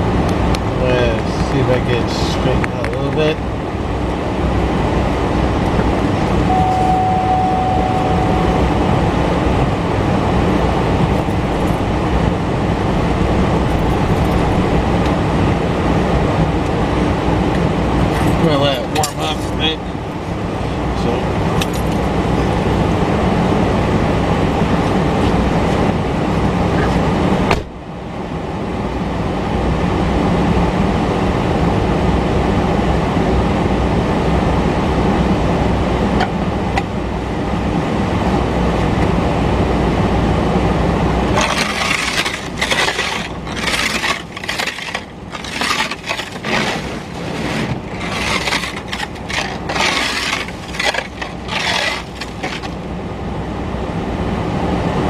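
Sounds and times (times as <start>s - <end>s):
car heater blowing: 0.0s - 18.8s, 19.6s - 55.0s
sharp rasping strokes: 41.4s - 52.8s.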